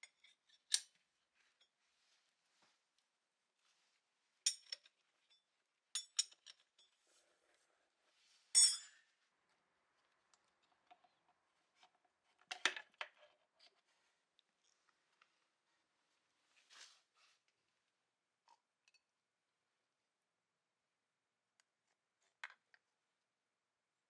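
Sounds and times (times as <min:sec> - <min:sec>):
metal parts and tools clinking: 0:08.6 - 0:09.0.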